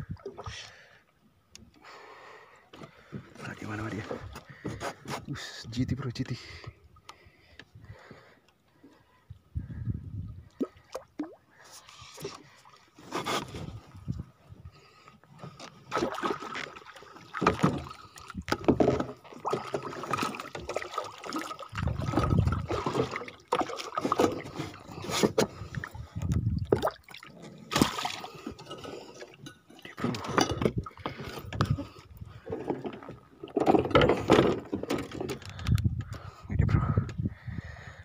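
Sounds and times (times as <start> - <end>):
water sloshing around boat: 2.7 - 36.4.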